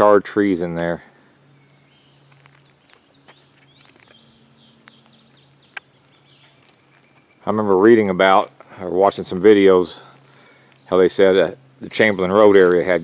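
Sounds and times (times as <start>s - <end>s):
low steady hum: 0.0s - 13.0s
faint bird chirps: 0.8s - 9.0s.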